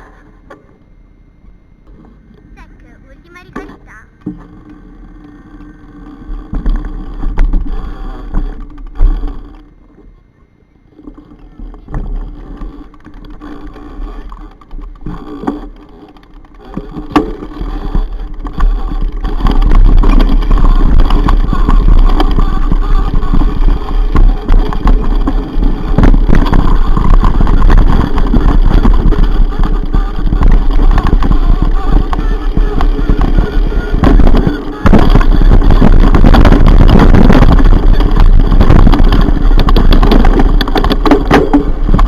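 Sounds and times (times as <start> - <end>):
bike rattling over ground: 3.3 - 10.2, 10.8 - 42.0
wind buffeting microphone: 16.4 - 42.0.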